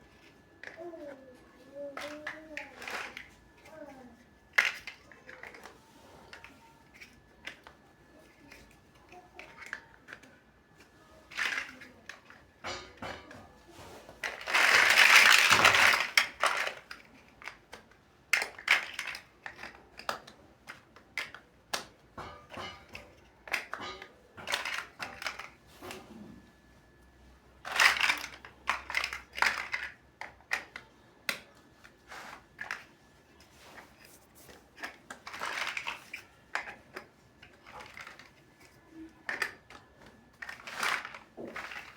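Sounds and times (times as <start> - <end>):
plastic bricks clicking: 14.2 - 21.9, 27.6 - 31.5, 34.8 - 41.9.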